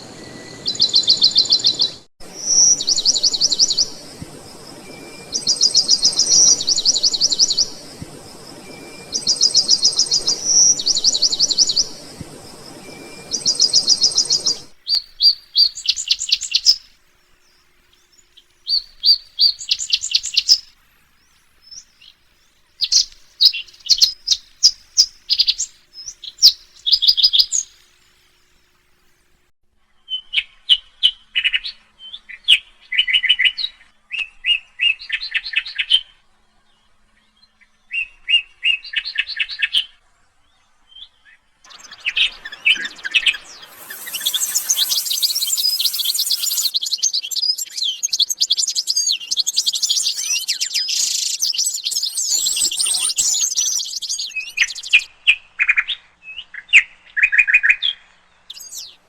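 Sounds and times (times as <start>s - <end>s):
songbirds trilling and chirping: 0.0s - 29.2s, 40.4s - 55.1s, 57.8s - 59.0s.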